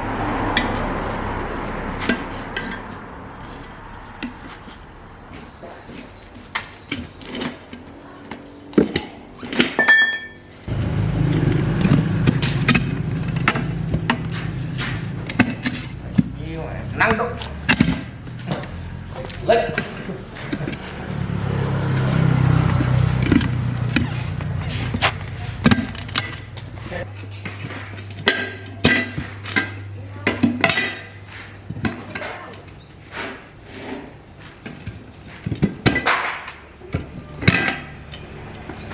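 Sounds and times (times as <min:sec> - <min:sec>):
engine running: 0:00.0 - 0:30.2
metal tools clinking: 0:09.3 - 0:31.2.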